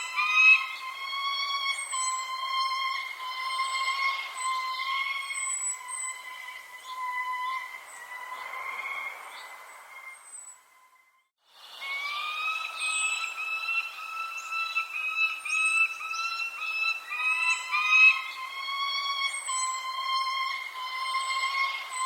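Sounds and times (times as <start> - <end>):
birds chirping: 0.0 - 22.0
wavering whistle-like tone: 0.0 - 22.0.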